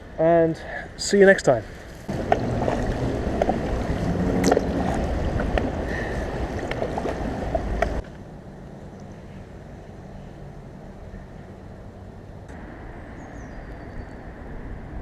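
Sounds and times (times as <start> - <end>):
water splashing around boat: 2.1 - 8.0.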